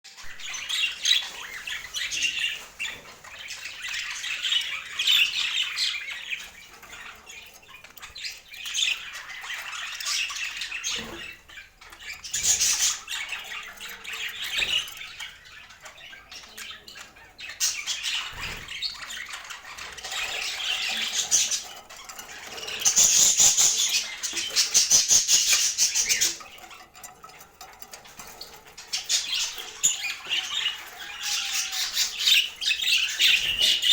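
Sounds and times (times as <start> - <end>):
budgerigars chattering and chirping: 0.2 - 33.9.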